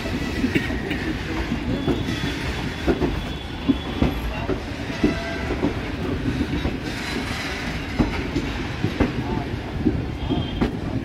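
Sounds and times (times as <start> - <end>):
train rumbling on rails: 0.0 - 11.0
wheels clacking and knocking: 0.0 - 11.0.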